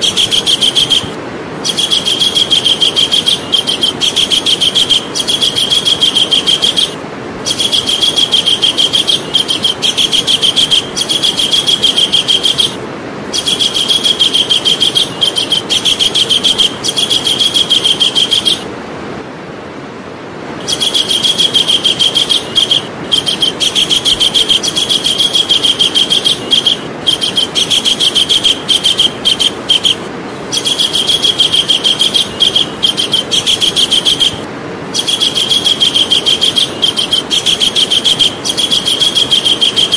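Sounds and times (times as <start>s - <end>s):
kingfisher calling: 0.0s - 18.7s, 20.6s - 39.9s
steady hiss: 0.0s - 39.9s.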